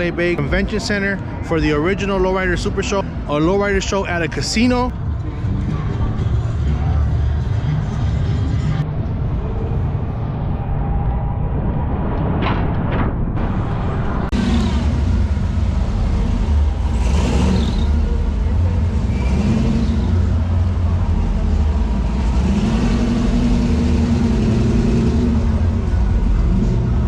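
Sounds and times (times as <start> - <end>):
car engine with deep exhaust: 14.3 - 27.0.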